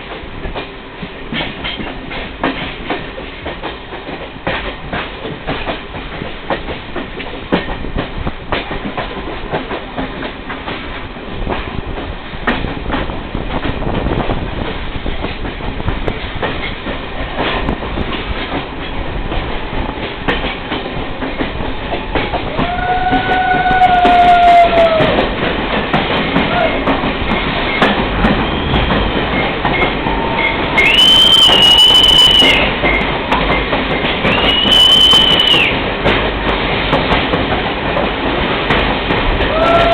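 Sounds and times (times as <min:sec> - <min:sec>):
train rumbling: 0:00.0 - 0:39.9
wheels clicking over rail joints: 0:00.0 - 0:39.9
high-pitched squeals: 0:30.2 - 0:32.7.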